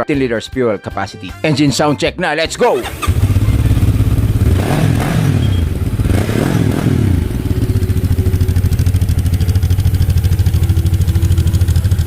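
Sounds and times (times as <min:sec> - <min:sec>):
motorcycle engine idling and revving: 0:02.8 - 0:12.0.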